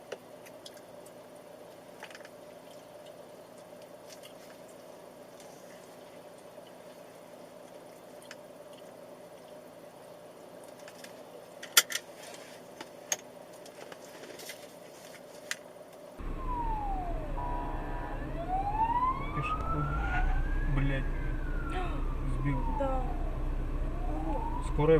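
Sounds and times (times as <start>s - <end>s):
low road rumble: 16.2s - 24.9s
wailing siren: 16.2s - 24.9s.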